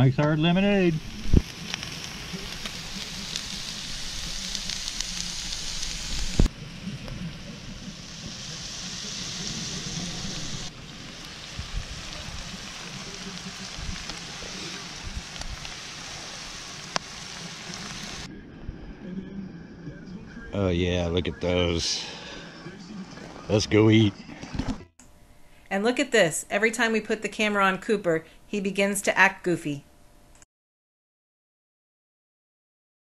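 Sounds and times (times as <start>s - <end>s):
food sizzling on a griddle: 0.4s - 18.3s.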